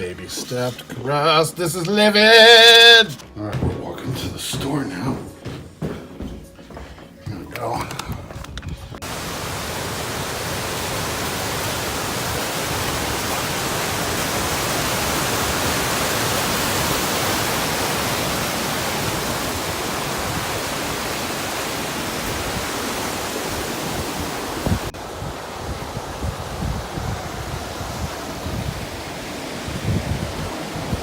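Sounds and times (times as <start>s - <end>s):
rushing wind: 7.9s - 31.0s.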